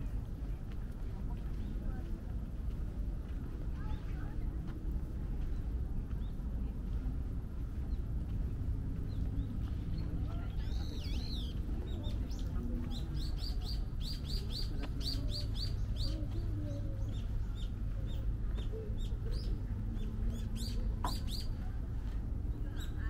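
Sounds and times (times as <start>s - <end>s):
low background rumble: 0.0s - 23.0s
small birds chirping: 7.6s - 23.0s.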